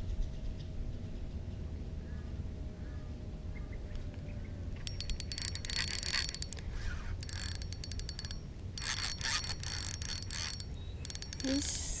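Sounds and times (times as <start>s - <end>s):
fishing reel drag clicking: 4.8s - 12.0s.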